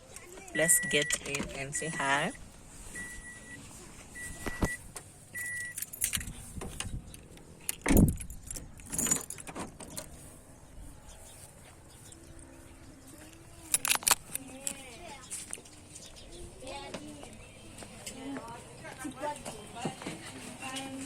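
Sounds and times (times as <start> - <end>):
car warning chime beeping: 0.6 - 2.4, 3.0 - 3.6, 4.2 - 5.9
keys jangling: 5.4 - 6.5, 7.2 - 10.2, 13.3 - 14.9.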